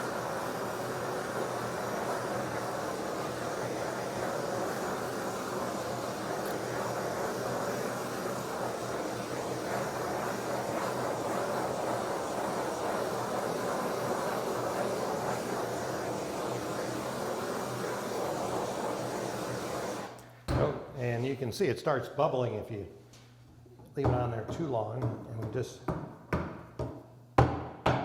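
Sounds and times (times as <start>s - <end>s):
torch flame rushing: 0.0s - 20.2s.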